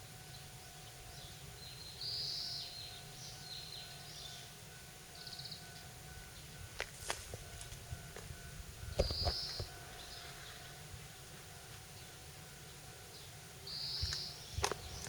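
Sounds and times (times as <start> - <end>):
small birds chirping: 0.0 - 8.2, 8.8 - 15.0.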